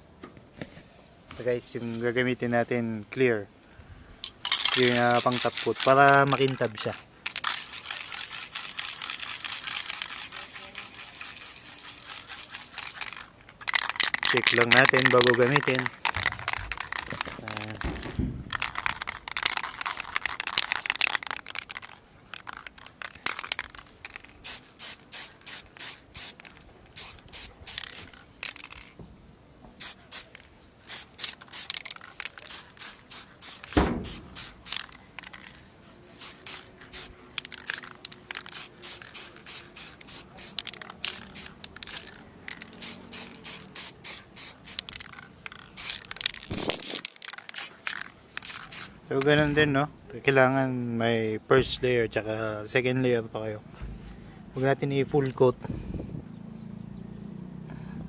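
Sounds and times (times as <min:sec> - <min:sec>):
aerosol spray can spraying: 0:04.6 - 0:28.9, 0:29.8 - 0:35.6, 0:36.2 - 0:49.0
loud bump: 0:17.8 - 0:18.6, 0:33.8 - 0:34.4.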